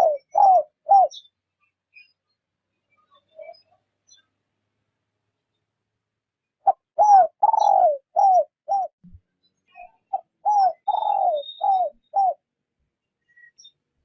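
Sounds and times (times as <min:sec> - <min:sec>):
dove cooing: 0:00.0 - 0:01.2, 0:06.6 - 0:08.9, 0:10.1 - 0:12.4
small birds chirping: 0:00.0 - 0:05.8, 0:06.4 - 0:14.0.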